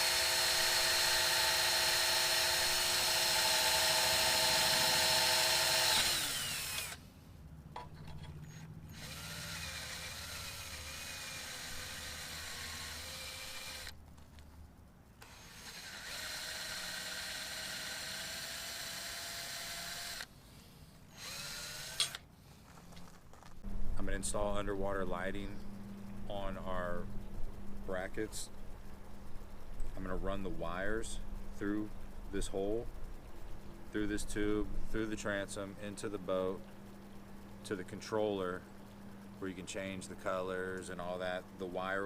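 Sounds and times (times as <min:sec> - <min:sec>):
power drill whining: 0:00.0 - 0:07.0, 0:08.4 - 0:14.0, 0:15.2 - 0:20.3, 0:21.1 - 0:22.2.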